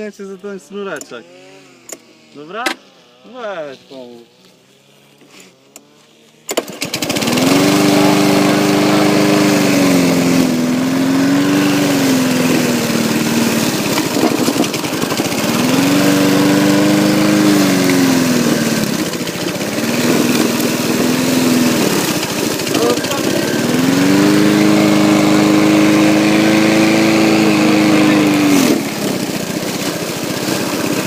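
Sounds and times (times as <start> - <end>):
lawnmower engine running: 0.0 - 31.0.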